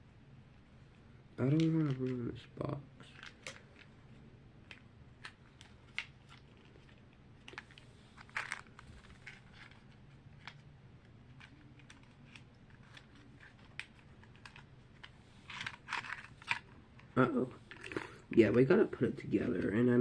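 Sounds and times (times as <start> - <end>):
plastic packaging crinkling: 4.6 - 18.6.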